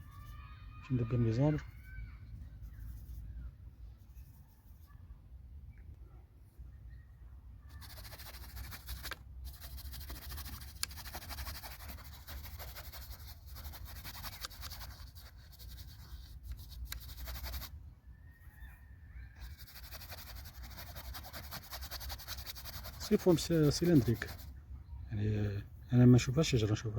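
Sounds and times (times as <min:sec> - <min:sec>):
paintbrush scratchy strokes: 0:00.0 - 0:05.0, 0:07.7 - 0:17.7, 0:19.4 - 0:24.5.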